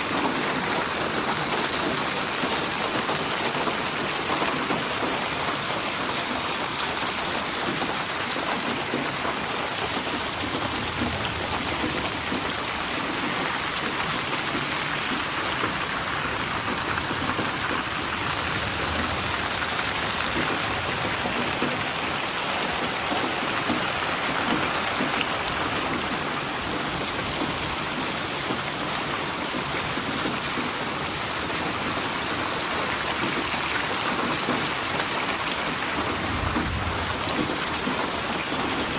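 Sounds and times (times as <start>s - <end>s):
steady rain pattering: 0.0s - 38.9s.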